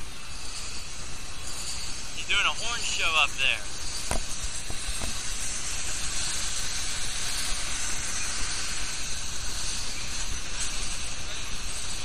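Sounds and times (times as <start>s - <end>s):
low train rumble: 0.0s - 12.0s
train wheels rolling on rail: 0.0s - 12.0s.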